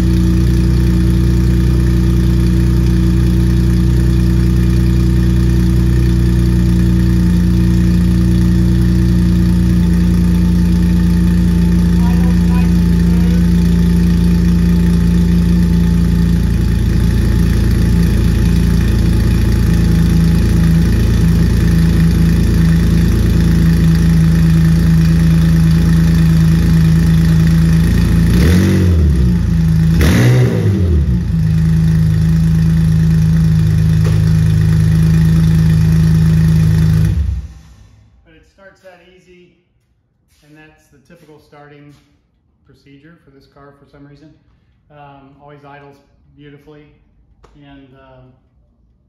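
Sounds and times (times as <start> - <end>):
car engine idling: 0.0 - 38.2
engine throttle blips: 7.3 - 38.2.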